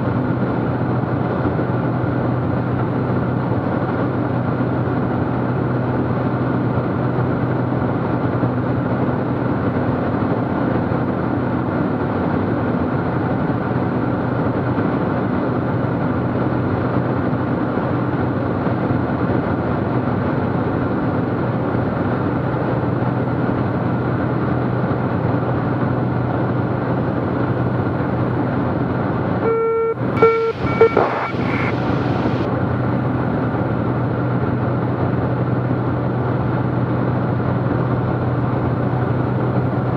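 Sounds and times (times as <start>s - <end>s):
aircraft engine and propeller drone: 0.0s - 39.9s
short tones and clicks: 29.4s - 32.5s.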